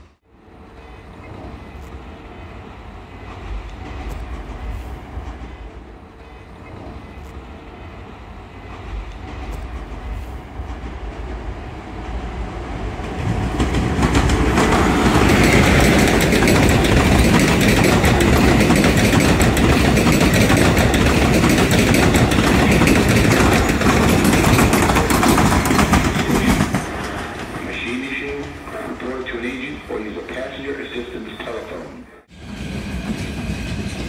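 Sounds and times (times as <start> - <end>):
passenger train rumbling past: 0.0 - 34.0
wheels clattering over rail joints: 13.2 - 27.7.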